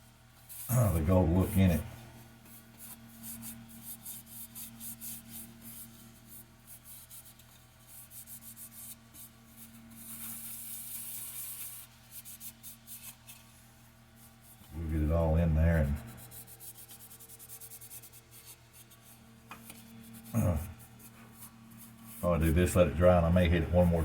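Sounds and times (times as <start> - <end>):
faint steady hum: 0.0 - 24.0
cloth rubbing wooden bowl: 0.6 - 1.8, 14.3 - 24.0.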